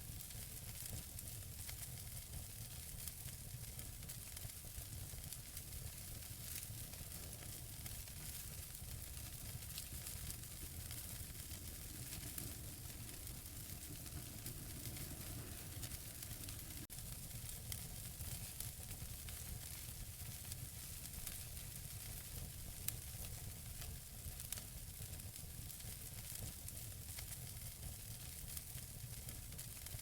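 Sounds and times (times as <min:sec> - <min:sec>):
burning logs hiss and rumble: 0:00.0 - 0:30.0
fire popping and snapping: 0:00.2 - 0:30.0.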